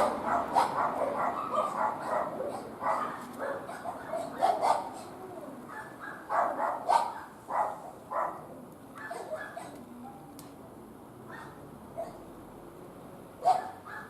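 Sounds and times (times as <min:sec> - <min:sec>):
dog barking: 0:00.0 - 0:10.3, 0:11.3 - 0:12.2, 0:13.4 - 0:14.0.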